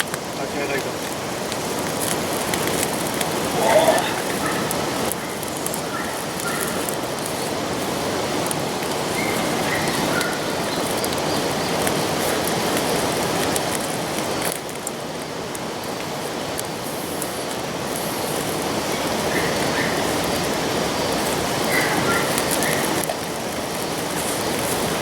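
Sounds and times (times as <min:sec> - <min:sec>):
steady rushing noise: 0:00.0 - 0:14.7
wood fire crackling: 0:00.0 - 0:25.0.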